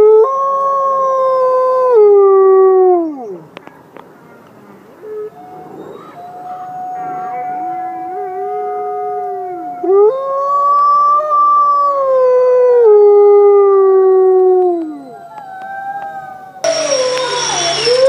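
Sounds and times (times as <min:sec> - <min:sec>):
dogs howling: 0:05.0 - 0:18.0.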